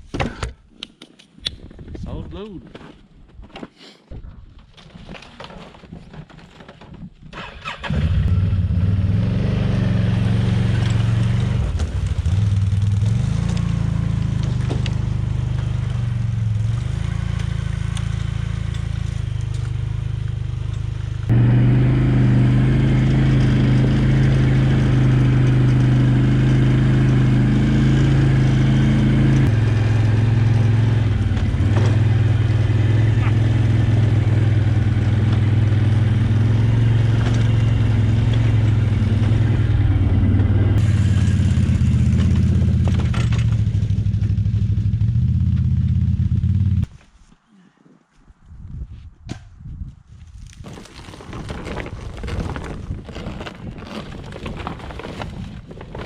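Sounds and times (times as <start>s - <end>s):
atv engine running: 7.6s - 46.9s.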